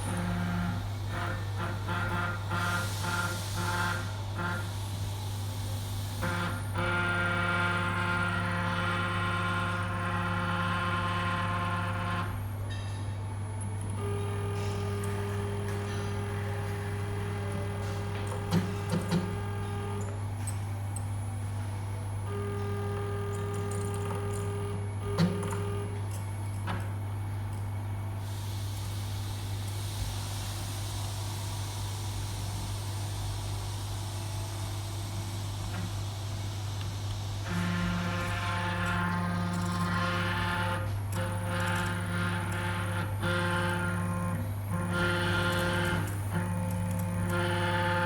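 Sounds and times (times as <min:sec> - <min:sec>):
stepper motors humming: 0:13.4 - 0:27.8, 0:37.1 - 0:48.0
pitched motor tones: 0:13.8 - 0:20.2, 0:37.4 - 0:48.0.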